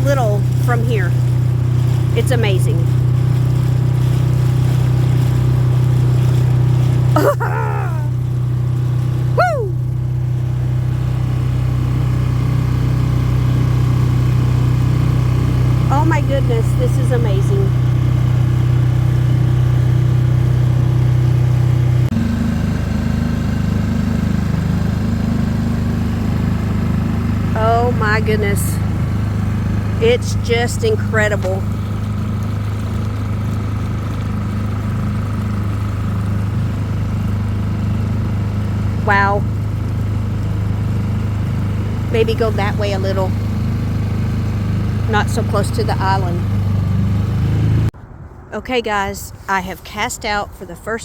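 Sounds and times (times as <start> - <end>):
outboard motor running: 0.0 - 48.0
short falling cry: 7.2 - 8.2, 9.4 - 9.9.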